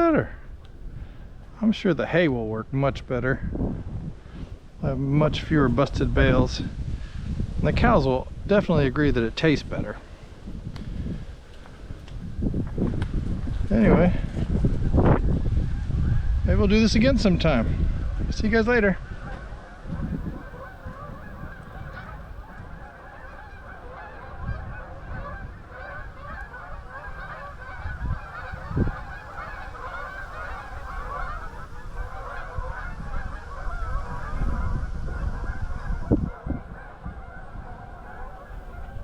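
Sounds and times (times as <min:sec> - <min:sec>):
honking calls: 0:19.2 - 0:34.6, 0:35.3 - 0:39.0.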